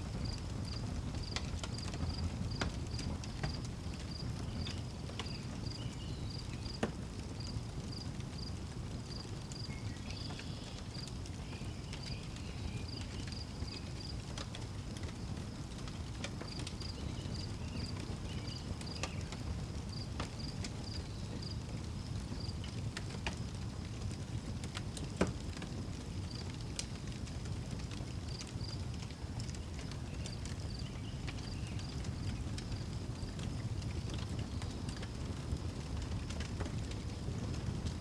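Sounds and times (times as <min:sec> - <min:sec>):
wood fire crackling: 0:00.0 - 0:38.0.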